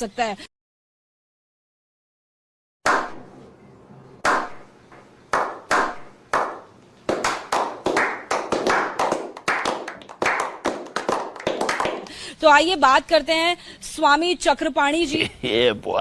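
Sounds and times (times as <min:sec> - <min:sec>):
hand claps: 0:04.2 - 0:04.6, 0:05.3 - 0:12.2.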